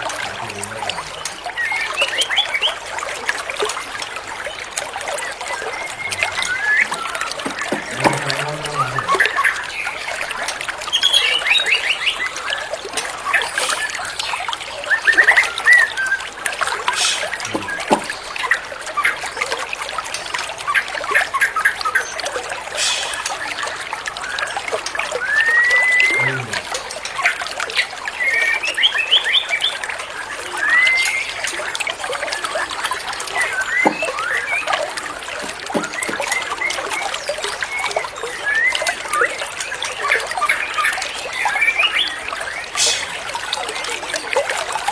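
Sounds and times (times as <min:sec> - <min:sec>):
trickling water: 0:00.0 - 0:44.9
songbird whistling and trilling: 0:01.3 - 0:02.8, 0:05.3 - 0:08.0, 0:10.9 - 0:12.4, 0:25.2 - 0:26.3, 0:30.6 - 0:31.7.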